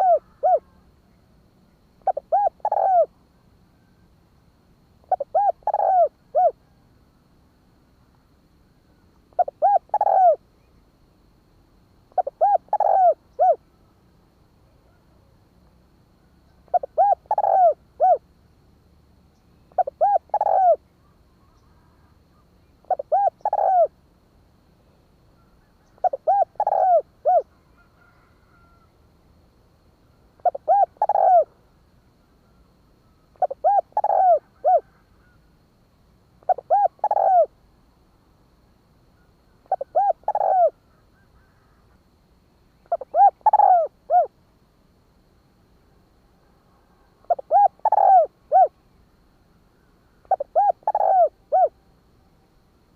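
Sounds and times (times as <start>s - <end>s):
dove cooing: 0.0s - 0.8s, 2.0s - 3.2s, 5.0s - 6.8s, 9.3s - 10.4s, 12.1s - 13.6s, 16.6s - 18.2s, 19.7s - 22.1s, 22.8s - 24.0s, 25.4s - 28.8s, 30.4s - 31.6s, 33.0s - 35.4s, 36.4s - 37.5s, 39.2s - 42.0s, 42.8s - 44.4s, 47.0s - 48.8s, 50.2s - 51.8s.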